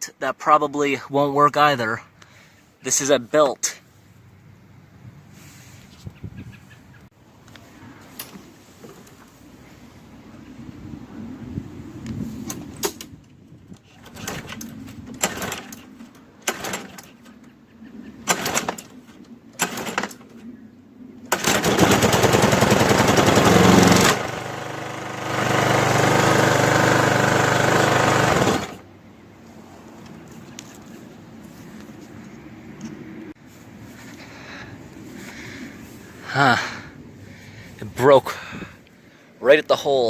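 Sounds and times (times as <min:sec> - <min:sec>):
recoil starter pulls: 0:13.8 - 0:17.3, 0:18.2 - 0:19.0, 0:19.6 - 0:20.3, 0:21.3 - 0:28.8
lawnmower engine running: 0:16.4 - 0:17.1, 0:21.3 - 0:28.9.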